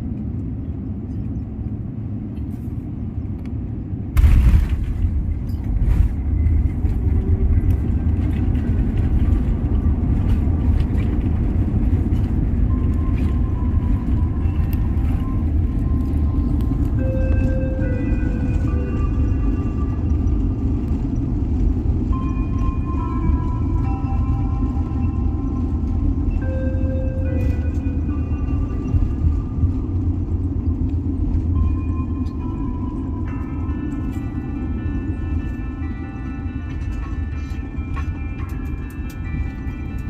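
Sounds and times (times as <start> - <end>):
airliner cabin rumble: 0.0 - 40.0
rattles and clicks: 4.2 - 40.0.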